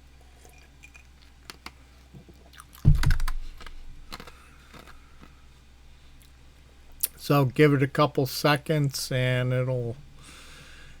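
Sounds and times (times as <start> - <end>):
steady low hum: 0.0 - 11.0
loud dull thump: 2.8 - 3.4.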